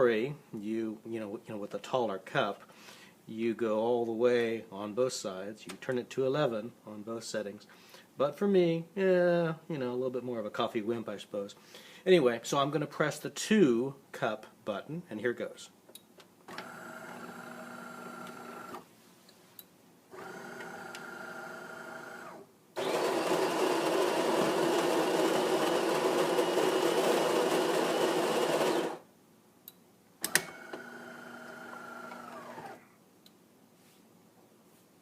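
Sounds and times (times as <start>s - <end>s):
coffee grinder grinding beans: 16.6s - 18.7s, 20.2s - 29.0s, 30.6s - 32.8s
espresso machine motor whirring: 16.6s - 18.8s, 20.1s - 29.0s, 30.4s - 32.8s.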